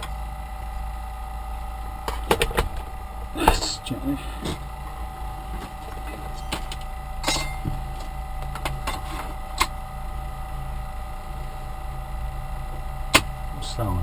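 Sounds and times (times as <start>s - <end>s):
cooling fan humming: 0.0s - 14.0s.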